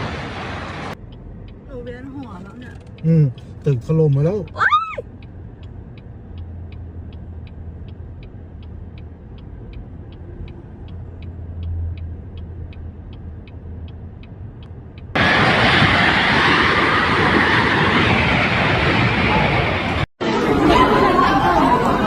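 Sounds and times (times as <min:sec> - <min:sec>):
light even ticking: 0:01.0 - 0:15.2
loud even rushing noise: 0:15.2 - 0:22.0.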